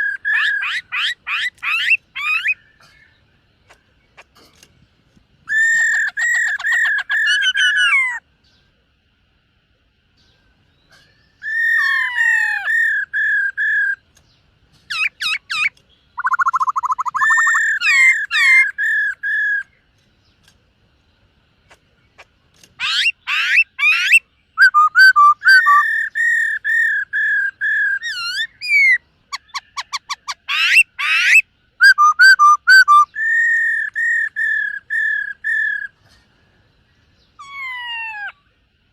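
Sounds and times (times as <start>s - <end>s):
bird singing whistled phrases: 14.9s - 19.8s, 22.8s - 35.9s.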